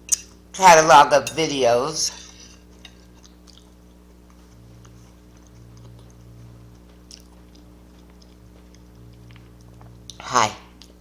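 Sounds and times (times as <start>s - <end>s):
steady low hum: 0.0s - 11.0s
chewing and wet mouth clicks: 3.2s - 10.2s.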